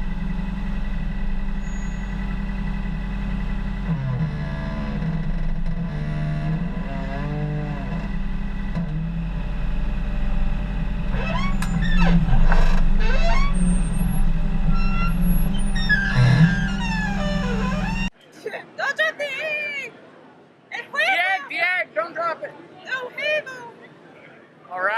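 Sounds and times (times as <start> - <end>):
sweeping squeals: 0.0 - 8.7, 10.4 - 18.1
backhoe diesel engine running: 0.0 - 18.1
whining tones: 0.0 - 18.1.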